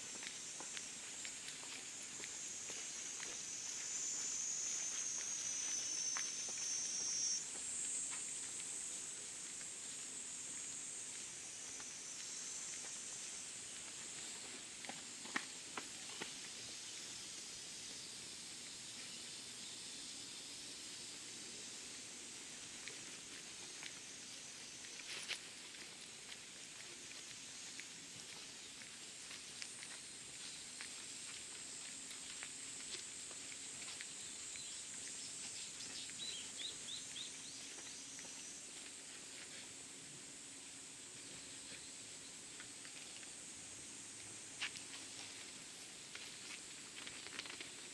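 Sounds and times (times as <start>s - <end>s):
footsteps on outdoor path: 0.0s - 17.2s, 22.2s - 47.9s
faint high-pitched hiss: 0.0s - 47.9s
faint ticks: 22.8s - 39.6s
small bird chirping: 34.1s - 38.5s.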